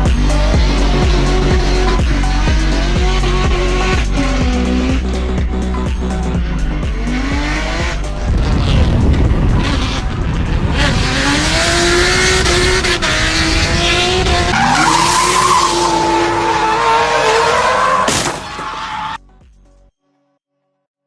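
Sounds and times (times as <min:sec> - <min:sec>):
car engine at high revs: 0:00.0 - 0:19.2
tyres skidding and squealing: 0:00.0 - 0:19.2.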